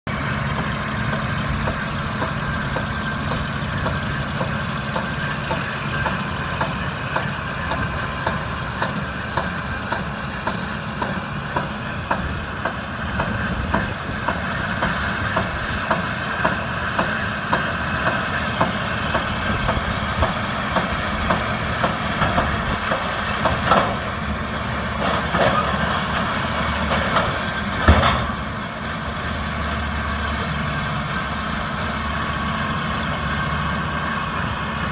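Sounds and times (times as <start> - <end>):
diesel tractor engine running: 0.0 - 34.9
loud knocks: 26.8 - 28.6.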